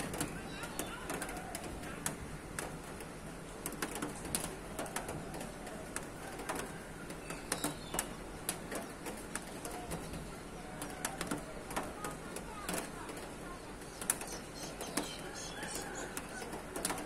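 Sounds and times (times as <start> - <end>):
birds chirping: 0.1 - 1.7, 7.1 - 10.9, 13.4 - 16.5.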